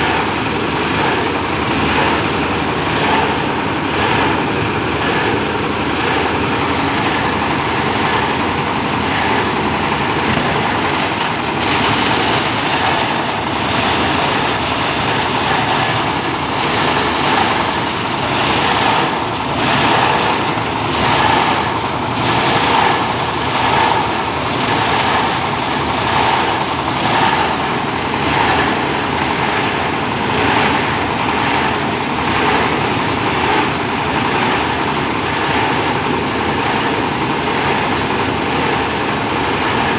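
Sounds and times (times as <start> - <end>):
shredder machine drone: 0.0 - 39.9.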